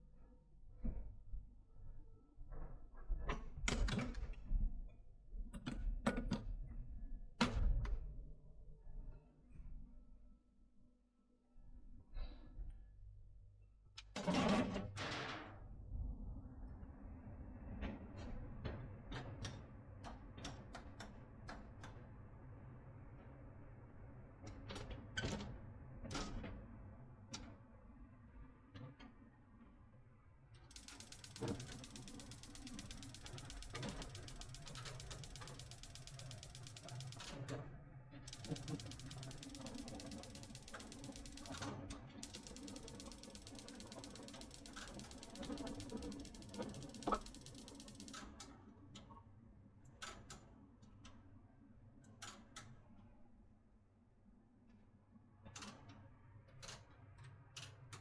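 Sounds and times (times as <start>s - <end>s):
sharp clicks and knocks: 30.7s - 37.4s, 38.3s - 48.2s.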